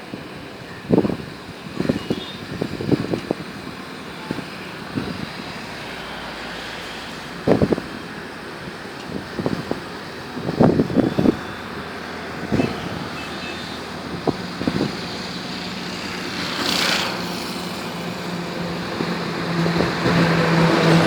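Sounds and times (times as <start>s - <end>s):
road traffic noise: 0.0s - 21.0s
vehicle passing: 10.6s - 21.0s.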